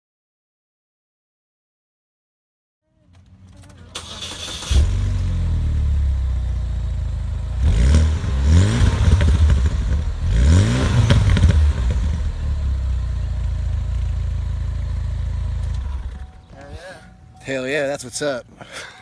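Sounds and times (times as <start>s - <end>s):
car engine starting and idling: 2.9s - 17.6s
engine revving: 3.0s - 16.8s.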